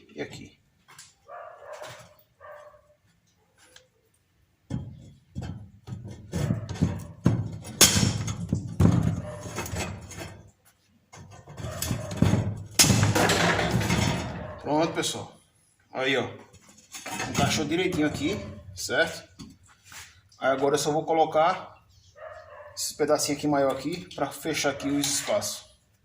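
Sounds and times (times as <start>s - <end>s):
metal clanks and knocks: 4.6s - 14.6s, 16.4s - 19.6s
sharp metal hits: 7.3s - 9.1s, 12.1s - 14.4s.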